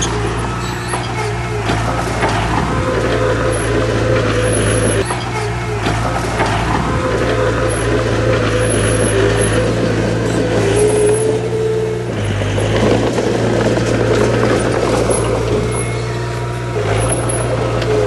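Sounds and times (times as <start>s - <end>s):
heavy diesel machinery droning: 0.0s - 18.0s.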